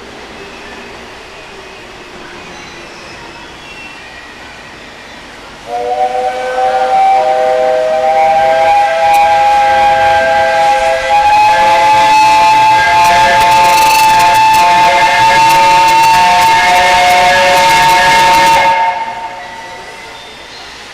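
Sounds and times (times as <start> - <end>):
steam locomotive whistle blast: 5.6 - 20.4.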